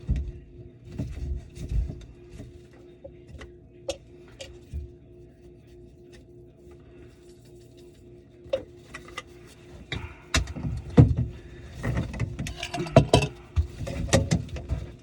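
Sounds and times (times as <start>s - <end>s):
faint steady hum: 0.0s - 15.0s
hard objects knocking and clattering: 9.9s - 15.0s.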